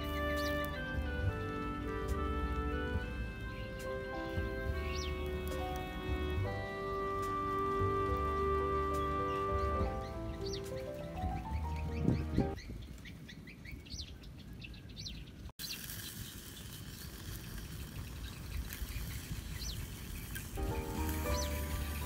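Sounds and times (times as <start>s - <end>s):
tune: 0.0s - 12.6s, 20.6s - 22.0s
small birds chirping: 0.0s - 22.0s
pot simmering and bubbling: 15.6s - 22.0s.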